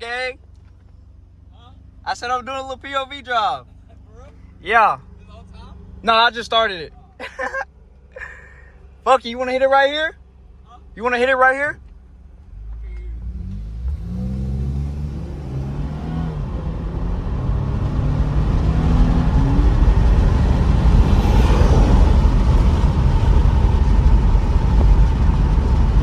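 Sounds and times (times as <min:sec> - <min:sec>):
road and wind noise: 0:00.0 - 0:26.0
car engine accelerating hard: 0:12.4 - 0:26.0.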